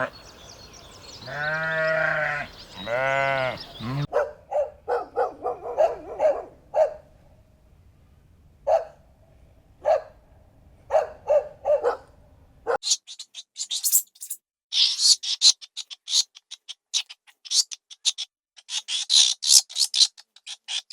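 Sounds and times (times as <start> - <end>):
dog barking: 4.1 - 7.1, 8.7 - 9.0, 9.8 - 10.2, 10.9 - 12.8
high-pitched chirps: 12.8 - 15.8.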